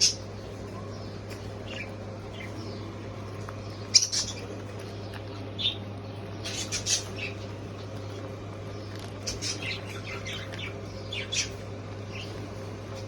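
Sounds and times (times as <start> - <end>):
steady low hum: 0.0 - 13.0
budgerigar squawking: 6.4 - 7.4.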